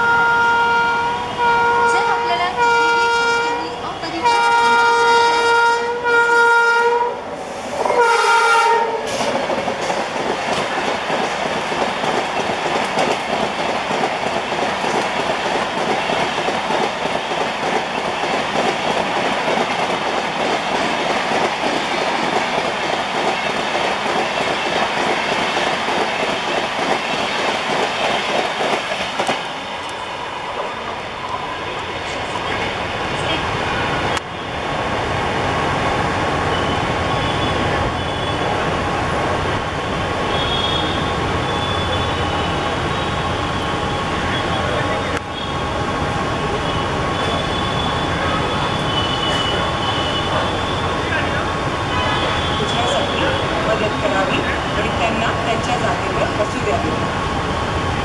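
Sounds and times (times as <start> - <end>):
locomotive horn blasts: 0.0 - 7.2, 7.9 - 9.1, 40.3 - 42.5
train passing rumble: 0.0 - 58.0.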